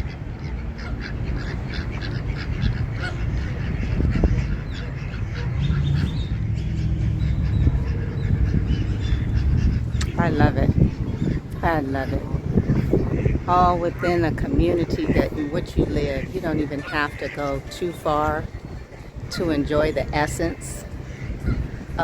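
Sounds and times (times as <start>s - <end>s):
low rumble: 0.0s - 16.3s
waterfowl quacking and honking: 0.0s - 22.0s.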